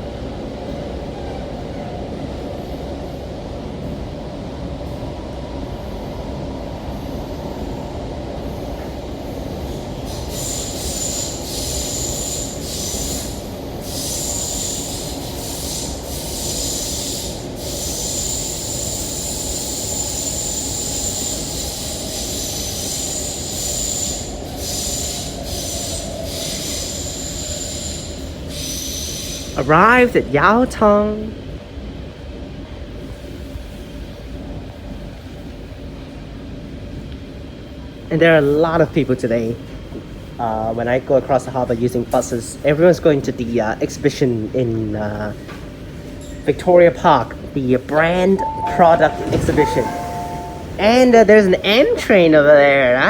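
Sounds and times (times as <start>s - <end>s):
train wheels rumbling on rail: 0.0s - 53.0s
train motor whine: 48.4s - 51.0s
high wheel squeal: 48.4s - 51.4s.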